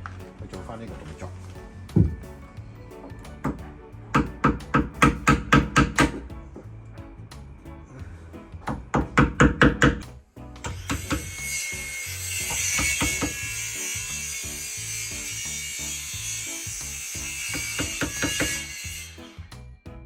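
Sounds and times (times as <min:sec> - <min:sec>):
power tool cutting wood: 0:10.6 - 0:19.6.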